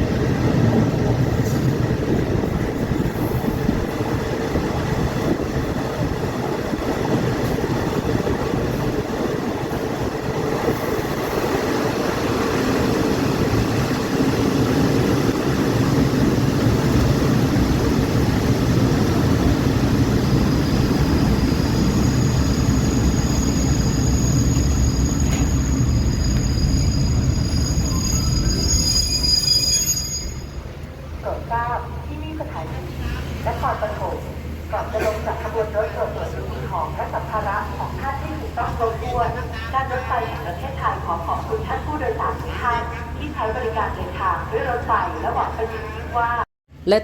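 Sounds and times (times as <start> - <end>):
train rumble: 0.0 - 46.4
high thin squeal: 21.6 - 30.6.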